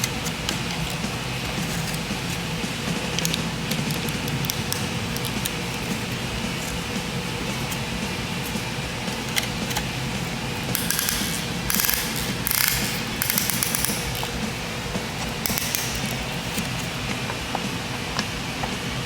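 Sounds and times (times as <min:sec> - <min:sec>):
steady background hum: 0:00.0 - 0:19.0
metal tools clicking: 0:03.1 - 0:17.0.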